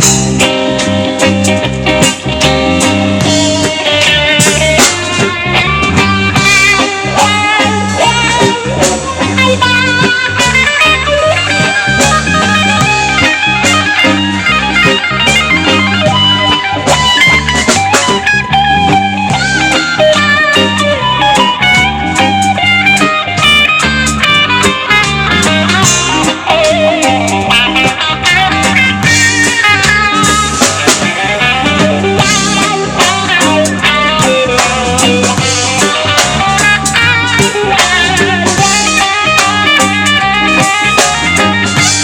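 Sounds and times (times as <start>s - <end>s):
bass guitar: 0.0s - 42.0s
drum kit: 0.0s - 42.0s
lead guitar: 0.0s - 42.0s.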